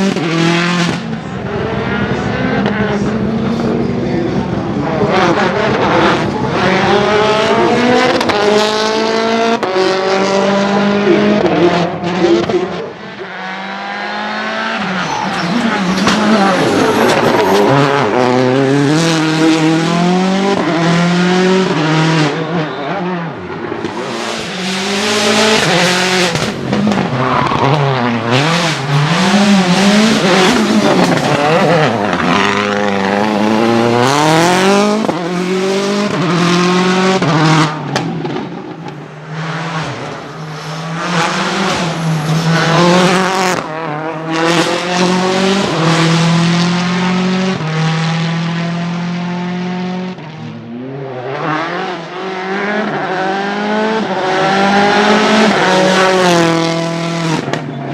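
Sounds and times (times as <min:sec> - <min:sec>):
rally car engine at full throttle: 0:00.0 - 0:57.9.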